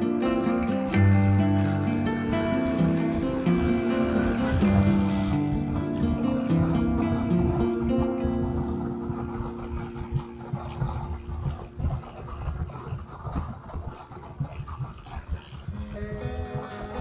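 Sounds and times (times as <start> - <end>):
background music: 0.0 - 12.1
wind rumbling on microphone: 0.0 - 17.0.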